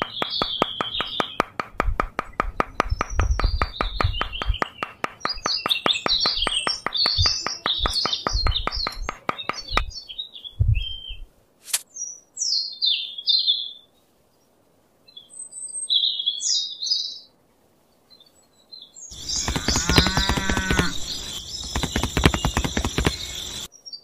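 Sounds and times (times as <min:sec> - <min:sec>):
small birds twittering: 0:00.0 - 0:01.5, 0:02.8 - 0:11.2, 0:18.1 - 0:24.0
loud animal call: 0:19.2 - 0:21.4.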